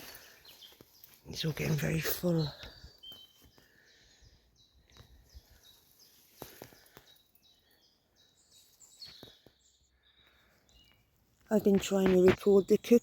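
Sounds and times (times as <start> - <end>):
faint songbird chirps: 0.0 - 13.0.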